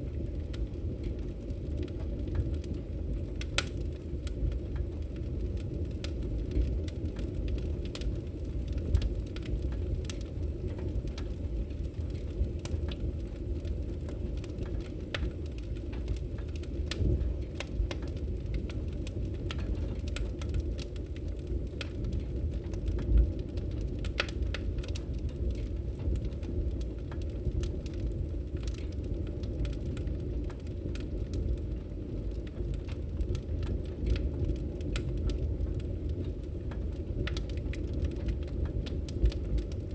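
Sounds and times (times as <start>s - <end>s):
fire flames rumbling: 0.0s - 39.9s
wood fire crackling and popping: 0.0s - 39.9s.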